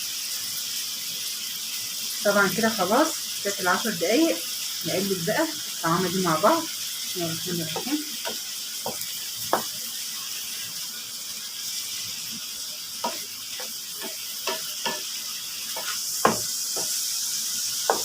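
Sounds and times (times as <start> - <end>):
liver sizzling in a pan: 0.0 - 18.0
utensil scraping and knocking pan: 13.0 - 17.0.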